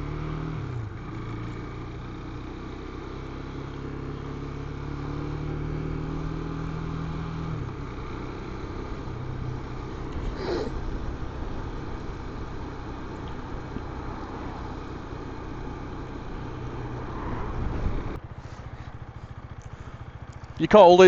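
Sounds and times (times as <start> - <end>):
motorcycle engine running: 0.0 - 21.0
wind noise: 17.2 - 18.2.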